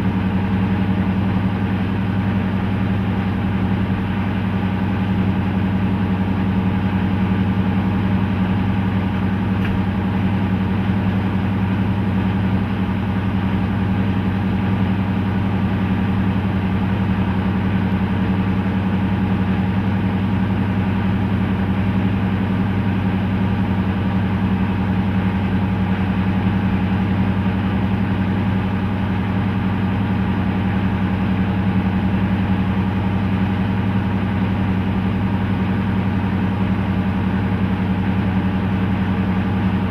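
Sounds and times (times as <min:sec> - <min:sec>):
locomotive diesel engines humming: 0:00.0 - 0:39.9.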